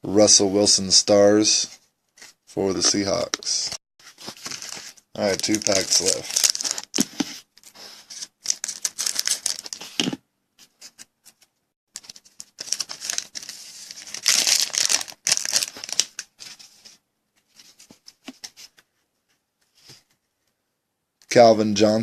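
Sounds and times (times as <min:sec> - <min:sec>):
foil wrapper tearing and crinkling: 0:04.4 - 0:07.1, 0:08.2 - 0:10.0, 0:12.0 - 0:16.3.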